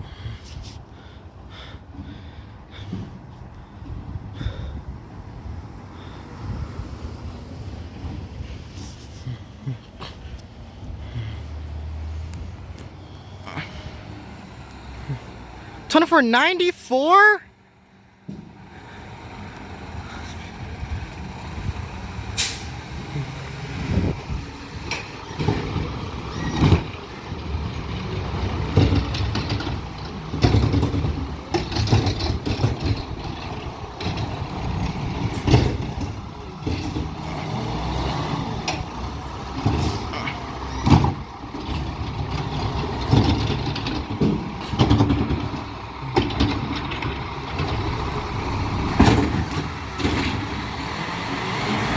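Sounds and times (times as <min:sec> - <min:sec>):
loader bangs and clatter: 0:18.1 - 0:51.9
garbage truck engine revving: 0:18.5 - 0:51.9.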